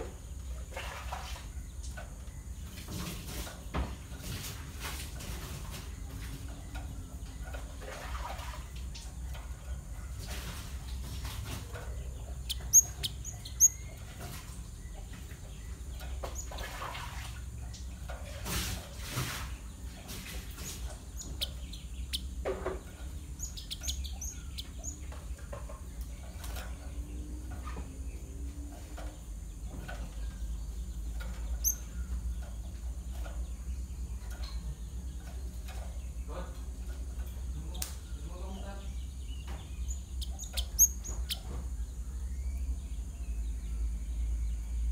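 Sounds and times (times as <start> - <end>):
low steady hum: 0.0 - 44.9
bird chirping: 8.6 - 18.2, 19.4 - 44.9.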